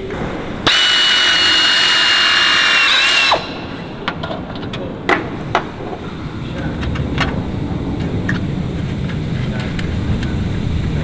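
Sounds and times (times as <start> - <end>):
power drill whining: 0.6 - 4.2.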